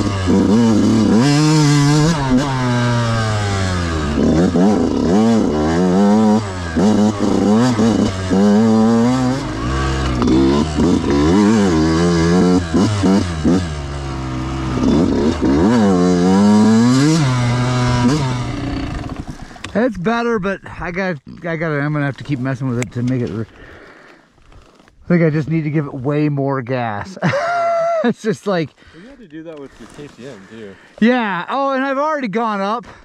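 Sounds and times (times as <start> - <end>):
dirt bike engine revving: 0.0 - 19.8.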